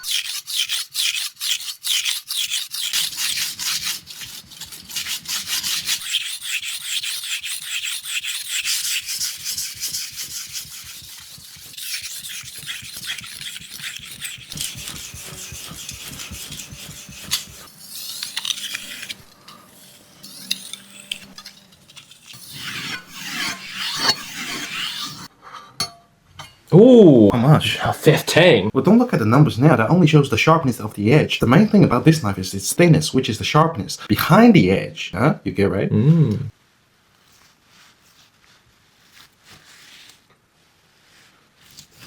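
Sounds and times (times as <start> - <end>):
knife blade sharpening strokes: 0.0 - 26.5.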